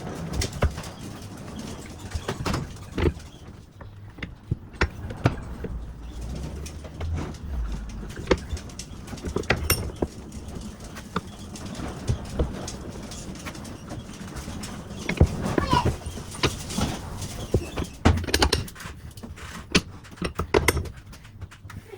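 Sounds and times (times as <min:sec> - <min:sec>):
clicks and knocks on metal parts: 0:02.2 - 0:21.8
low rumble: 0:04.0 - 0:10.8.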